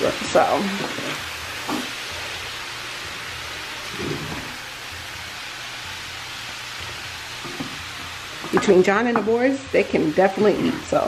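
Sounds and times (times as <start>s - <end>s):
food sizzling in a skillet: 0.0s - 11.0s
wooden spatula scraping: 0.4s - 4.7s.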